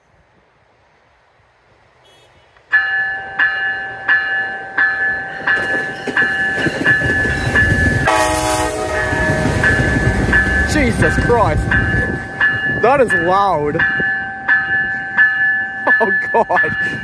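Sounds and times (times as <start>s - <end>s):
train rumbling: 2.6s - 17.0s
low multi-tone horn sound: 8.0s - 10.2s
train air horn short blasts: 8.1s - 9.6s.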